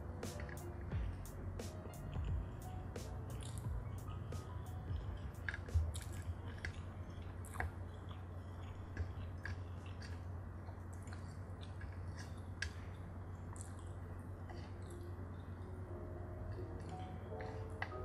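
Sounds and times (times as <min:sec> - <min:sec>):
person chewing food: 0:00.0 - 0:18.0
steady low hum: 0:00.0 - 0:18.0.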